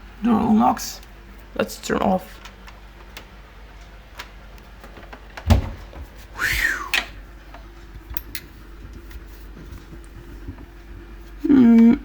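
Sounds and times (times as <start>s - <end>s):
washing machine latch thump: 5.4s - 6.1s.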